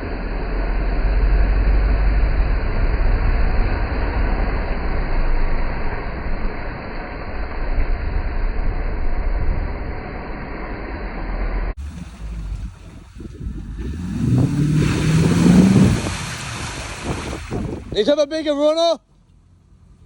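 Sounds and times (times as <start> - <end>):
car engine rumbling and revving: 0.0 - 20.0
wind buffeting microphone: 11.9 - 18.1.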